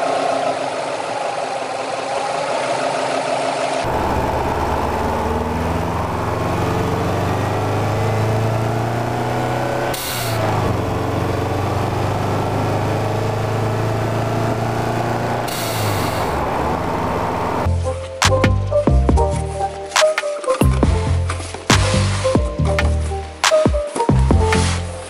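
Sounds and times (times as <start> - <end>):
car engine pulling through gears: 0.0 - 17.7.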